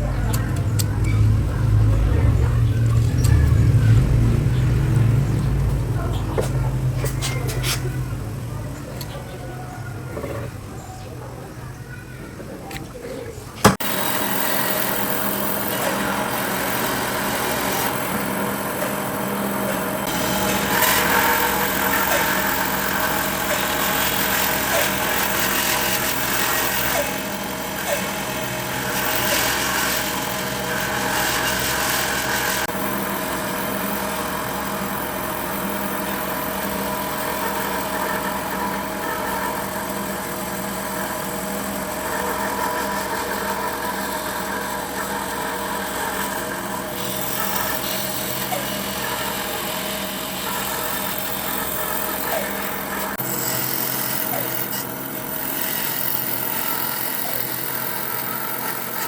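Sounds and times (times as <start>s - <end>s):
power tool motor cutting wood: 13.6s - 59.0s.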